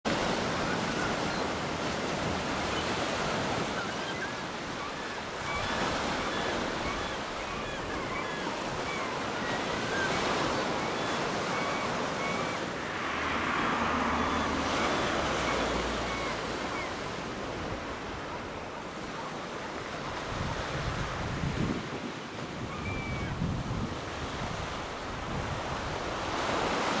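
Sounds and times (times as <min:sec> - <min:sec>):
surf washing onto beach: 0:08.9 - 0:18.7
wind buffeting microphone: 0:20.2 - 0:26.8.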